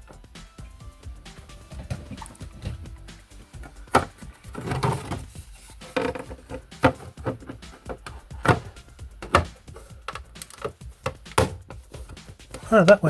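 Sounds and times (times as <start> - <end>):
model parts clicking and tapping: 9.2 - 11.5.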